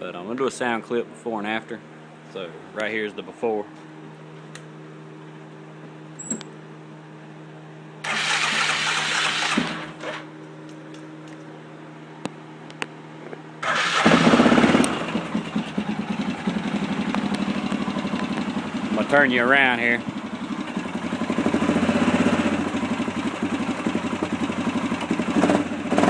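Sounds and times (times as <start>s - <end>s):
starter motor cranking: 8.0s - 10.3s, 13.6s - 15.6s
atv engine idling: 13.7s - 26.0s.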